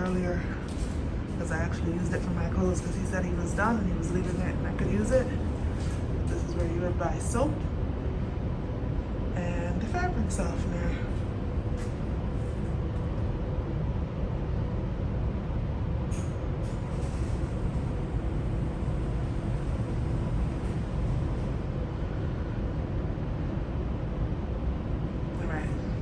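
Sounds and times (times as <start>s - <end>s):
laundry machines humming: 0.0s - 26.0s.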